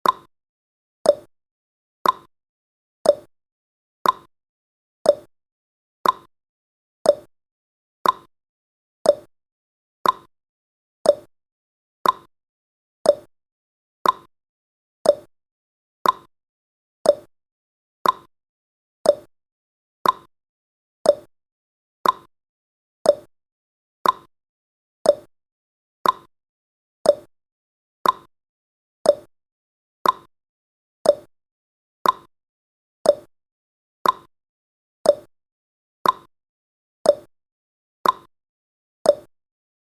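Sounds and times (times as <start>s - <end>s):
timer ticking tick-tock: 0.0s - 0.3s, 1.0s - 1.3s, 2.0s - 2.3s, 3.0s - 3.3s, 4.0s - 4.3s, 5.0s - 5.3s, 6.0s - 6.3s, 7.0s - 7.3s, 8.0s - 8.3s, 9.0s - 9.3s, 10.0s - 10.3s, 11.0s - 11.3s, 12.0s - 12.3s, 13.0s - 13.3s, 14.0s - 14.3s, 15.0s - 15.3s, 16.0s - 16.3s, 17.0s - 17.3s, 18.0s - 18.3s, 19.0s - 19.3s, 20.0s - 20.3s, 21.0s - 21.3s, 22.0s - 22.3s, 23.0s - 23.3s, 24.0s - 24.3s, 25.0s - 25.3s, 26.0s - 26.3s, 27.0s - 27.3s, 28.0s - 28.3s, 29.0s - 29.3s, 30.0s - 30.3s, 31.0s - 31.3s, 32.0s - 32.3s, 33.0s - 33.3s, 34.0s - 34.3s, 35.0s - 35.3s, 36.0s - 36.3s, 37.0s - 37.3s, 38.0s - 38.3s, 39.0s - 39.4s.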